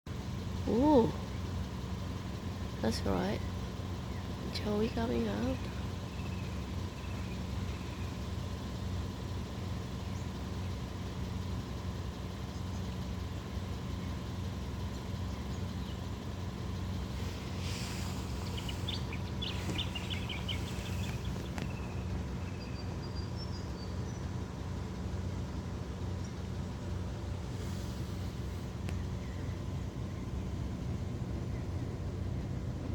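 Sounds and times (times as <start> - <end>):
low engine hum: 0.1 - 32.9
faint bird chirps: 0.4 - 9.0, 13.8 - 24.4, 28.9 - 32.5.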